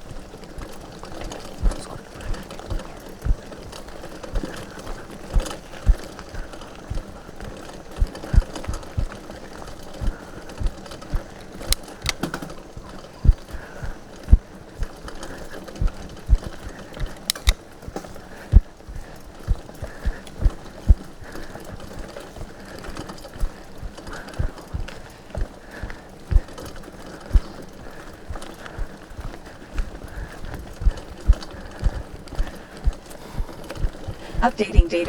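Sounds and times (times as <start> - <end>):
sharp clicks: 11.7 - 12.4, 17.3 - 17.6.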